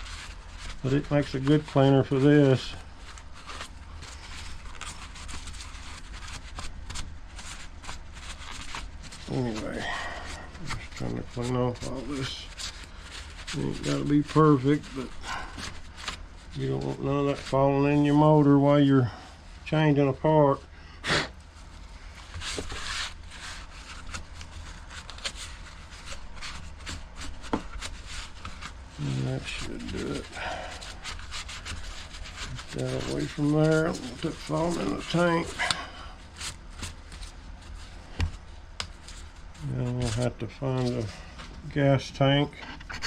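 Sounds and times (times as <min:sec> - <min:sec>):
scratchy scrubbing strokes: 0:21.6 - 0:37.9.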